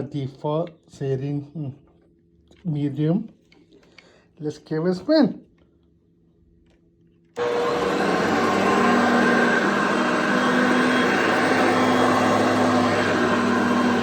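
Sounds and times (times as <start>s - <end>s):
vacuum cleaner running: 7.4s - 14.0s.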